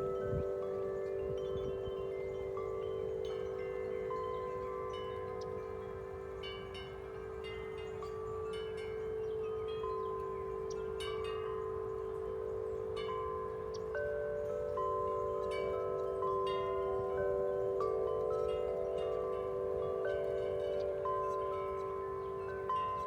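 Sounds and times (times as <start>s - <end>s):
deep metal wind chime tones: 0.0s - 23.0s
higher wind chime strikes: 0.0s - 23.0s
low rumble of wind: 0.0s - 23.0s.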